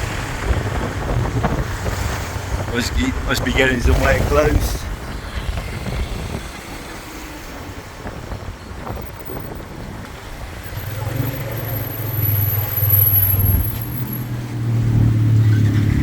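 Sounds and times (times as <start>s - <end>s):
wind and road noise: 0.0s - 16.0s
motorbike engine running: 8.4s - 14.3s
low engine drone: 8.8s - 16.0s
high-pitched whine: 10.4s - 14.4s.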